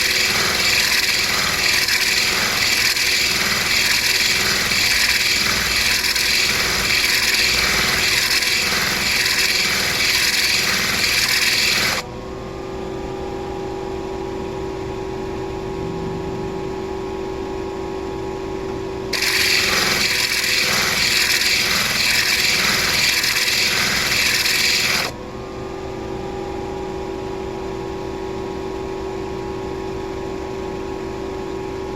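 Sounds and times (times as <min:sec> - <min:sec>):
stone grinding on wheel: 0:00.0 - 0:12.0, 0:19.1 - 0:25.2
grinder motor humming: 0:00.0 - 0:12.1, 0:19.1 - 0:25.2.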